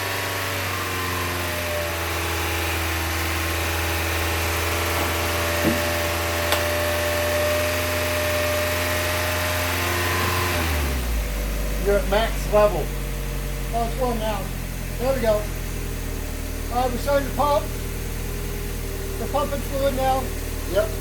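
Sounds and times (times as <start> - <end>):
car engine idling: 1.9 - 21.0
small engine knock: 5.0 - 6.8.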